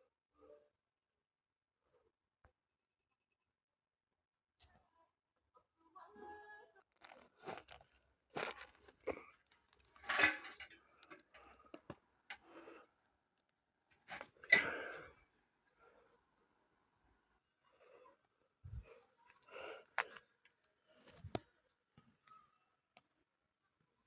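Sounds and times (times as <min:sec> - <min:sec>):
rustling and crunching: 0:06.9 - 0:12.0.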